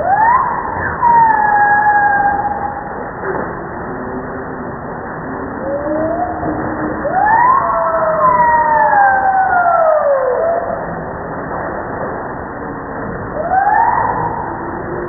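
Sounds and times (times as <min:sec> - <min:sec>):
wailing tone: 0:00.0 - 0:04.4, 0:05.4 - 0:11.1, 0:13.2 - 0:15.0.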